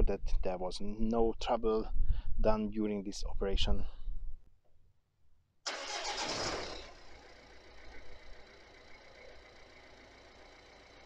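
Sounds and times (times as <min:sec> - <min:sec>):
diesel engine starting and idling: 0:05.7 - 0:11.0.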